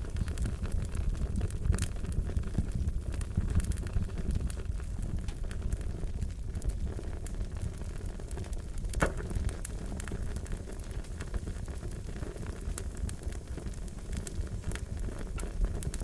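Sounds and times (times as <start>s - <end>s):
fire crackling: 0.0s - 16.0s.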